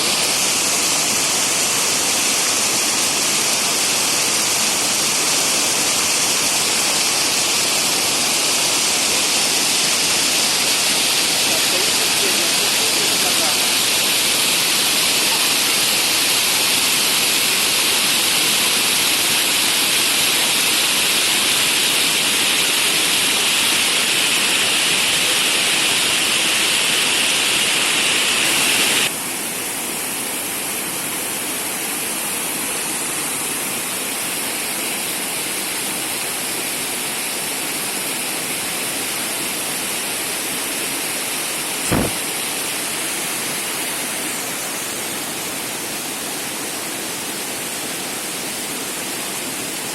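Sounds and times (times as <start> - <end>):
waterfall and stream rushing: 0.0 - 49.9
brief knock: 41.9 - 42.2.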